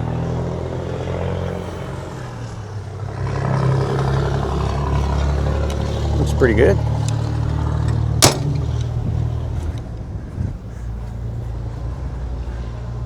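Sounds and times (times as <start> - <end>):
engine idling: 0.0 - 13.0
sharp click: 8.2 - 9.0.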